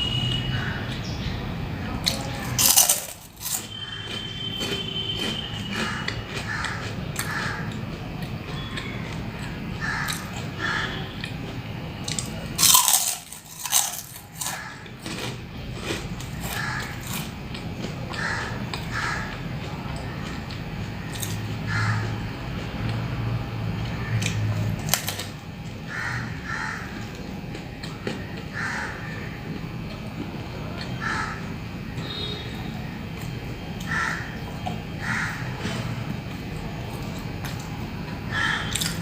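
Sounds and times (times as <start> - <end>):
chewing: 2.0 - 21.4, 38.7 - 39.0
crunchy snack bites: 2.0 - 22.1, 23.8 - 28.8, 38.3 - 39.0.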